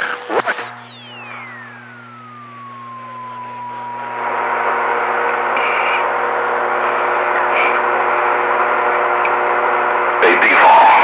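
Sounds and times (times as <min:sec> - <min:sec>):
radio static hiss: 0:00.0 - 0:11.0
steady whistling tone: 0:00.4 - 0:06.7.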